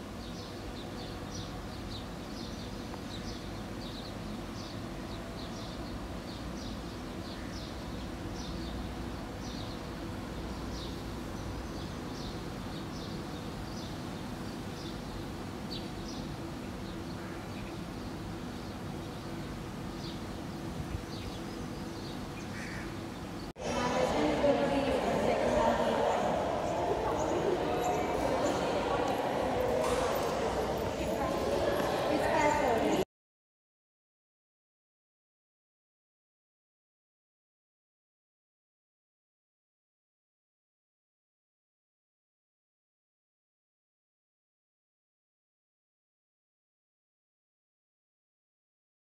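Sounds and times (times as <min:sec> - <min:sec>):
small birds chirping: 0:00.1 - 0:23.5.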